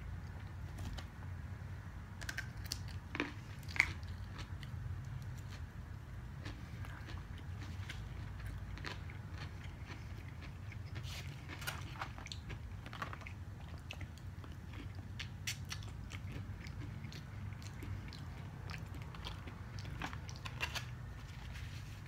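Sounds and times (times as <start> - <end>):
chewing noodles: 6.4 - 21.0.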